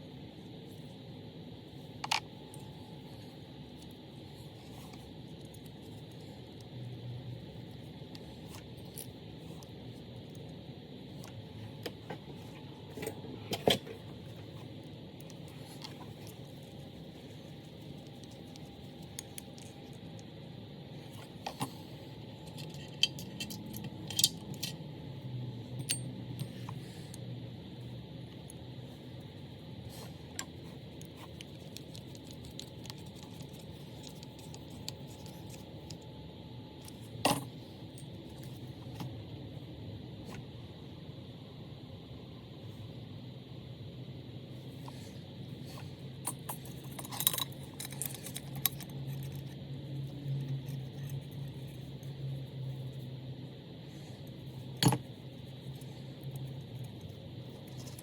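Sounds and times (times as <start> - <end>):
steady low hum: 0.0 - 58.0
metal parts clicking and scraping: 22.4 - 24.8, 46.2 - 49.6
small parts clicking and knocking: 22.4 - 24.8, 30.4 - 36.0, 46.2 - 52.1, 54.8 - 55.1.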